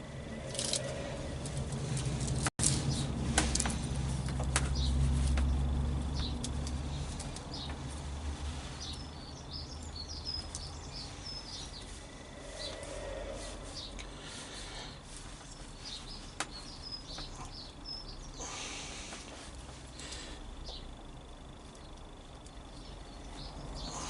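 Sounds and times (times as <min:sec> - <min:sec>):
low rumble: 0:00.0 - 0:10.2
small birds chirping: 0:02.6 - 0:24.0.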